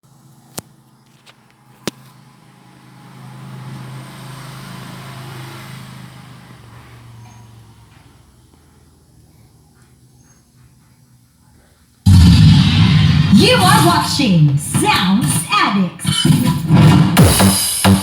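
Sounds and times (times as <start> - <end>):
vehicle passing by: 1.6 - 9.8.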